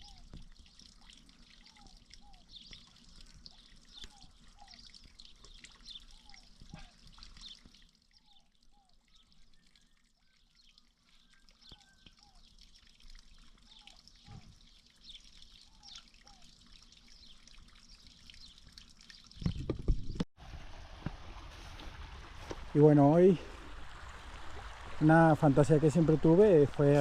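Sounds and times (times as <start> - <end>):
water trickling: 0.0 - 27.0
bird chirps: 1.7 - 12.6.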